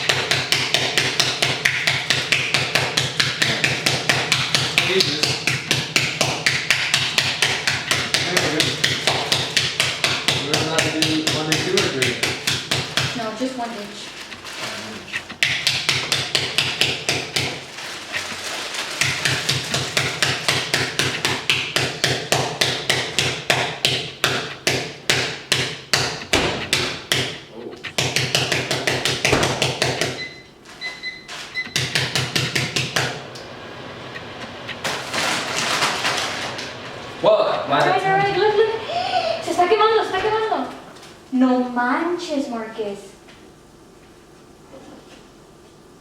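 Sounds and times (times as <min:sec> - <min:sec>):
chips crushed by pounding: 0:18.9 - 0:30.1.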